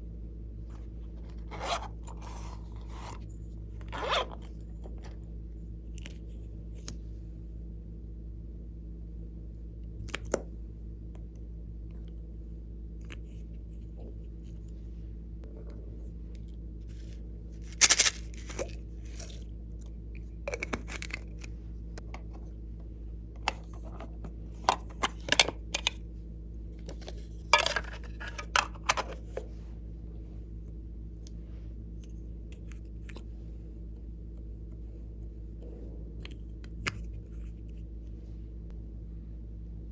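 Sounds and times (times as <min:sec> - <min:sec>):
steady low hum: 0:00.0 - 0:39.9
slime clicks and crackles: 0:17.7 - 0:19.3.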